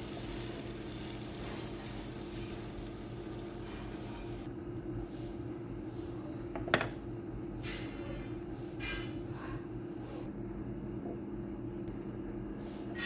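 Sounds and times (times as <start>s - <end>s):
food sizzling in a pan: 0.0s - 4.5s.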